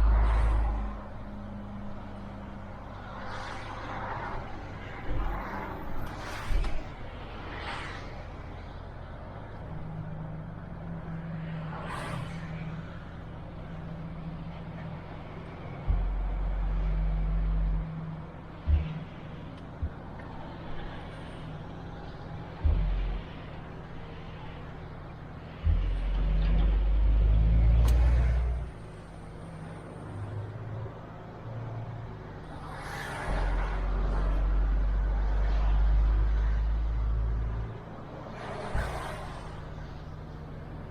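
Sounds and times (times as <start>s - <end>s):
truck diesel engine rumbling: 13.0s - 32.5s.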